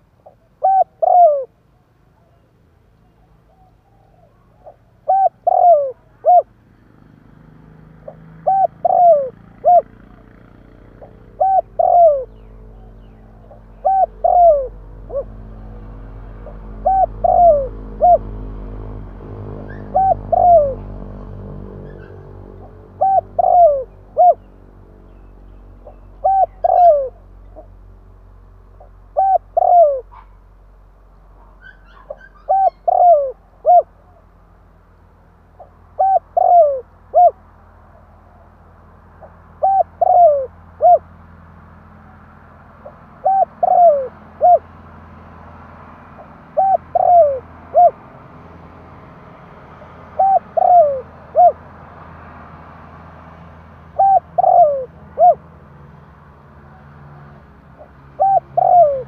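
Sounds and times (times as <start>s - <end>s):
dove cooing: 0.0s - 1.6s, 3.2s - 6.6s, 7.6s - 24.7s, 25.8s - 27.8s, 28.8s - 30.3s, 31.6s - 34.3s, 35.6s - 38.5s, 39.2s - 41.1s, 42.8s - 44.7s, 46.2s - 48.0s, 50.0s - 51.6s, 53.9s - 55.5s, 56.7s - 59.0s
low steady rumble: 8.0s - 49.4s.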